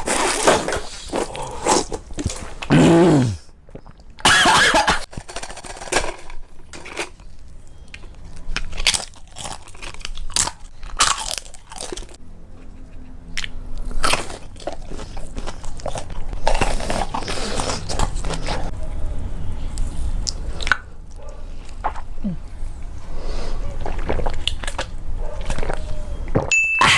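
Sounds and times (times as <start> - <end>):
person chewing and biting food: 8.5 - 12.2, 13.0 - 18.7, 23.7 - 26.5.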